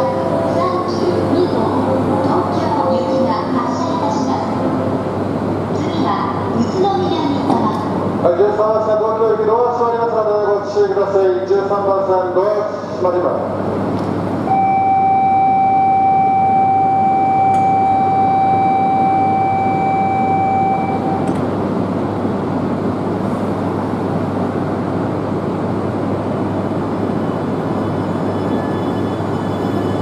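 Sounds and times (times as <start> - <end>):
train humming: 0.0 - 8.6, 12.7 - 30.0
electronic warning tone: 14.5 - 21.3.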